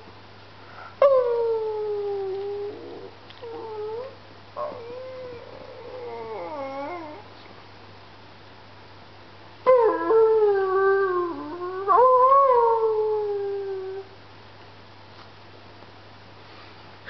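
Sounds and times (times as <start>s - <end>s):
puppy howling: 1.0s - 7.2s, 9.7s - 14.1s.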